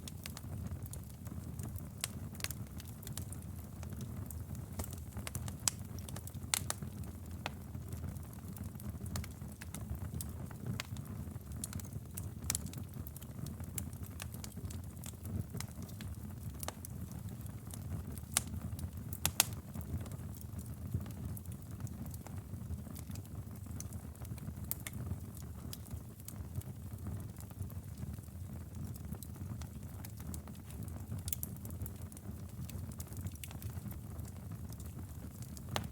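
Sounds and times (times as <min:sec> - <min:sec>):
wood crackling and popping: 0:00.0 - 0:35.9
bonfire flames rumbling: 0:00.1 - 0:35.9.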